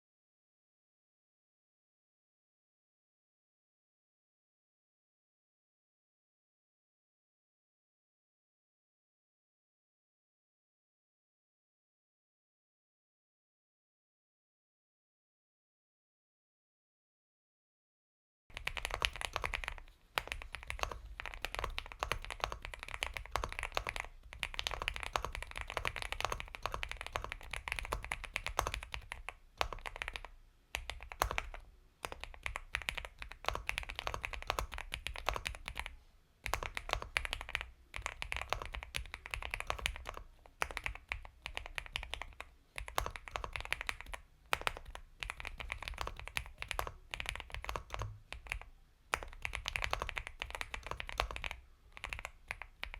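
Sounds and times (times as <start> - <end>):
typing on mechanical keyboard: 18.5 - 52.9.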